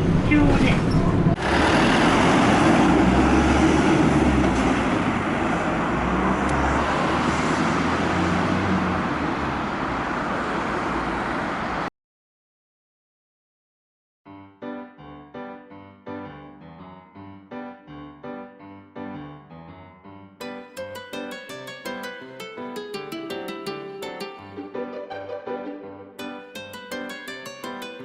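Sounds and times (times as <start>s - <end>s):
bus engine rumble: 0.0s - 11.9s
road noise: 0.0s - 11.9s, 20.9s - 28.0s.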